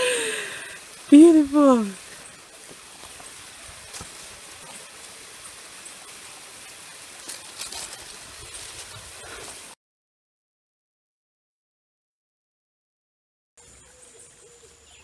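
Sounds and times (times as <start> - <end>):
steady outdoor hiss: 0.0 - 9.8, 13.6 - 15.0.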